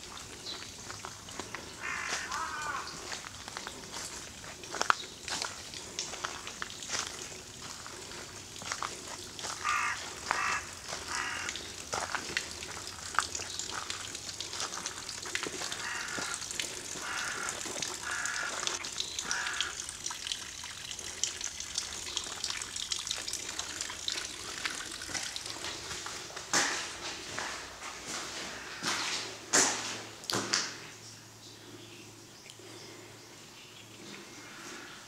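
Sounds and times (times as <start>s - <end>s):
footsteps crunching on gravel: 0.0s - 16.4s, 24.3s - 30.6s
outdoor hiss: 0.0s - 28.7s.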